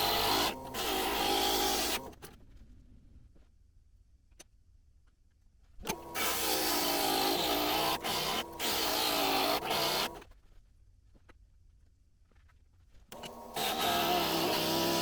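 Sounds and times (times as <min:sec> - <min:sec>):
glass grinder running: 0:13.4 - 0:15.0.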